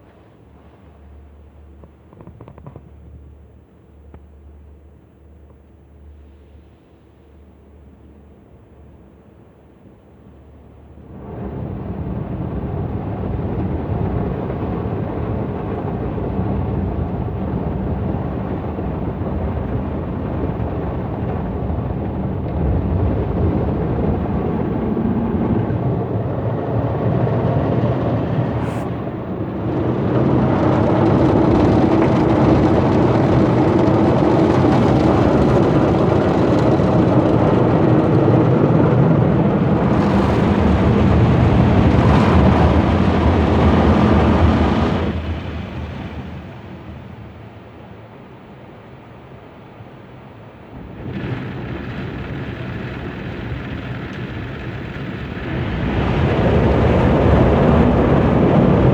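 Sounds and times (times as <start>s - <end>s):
car wash water and machine noise: 0.0s - 58.9s.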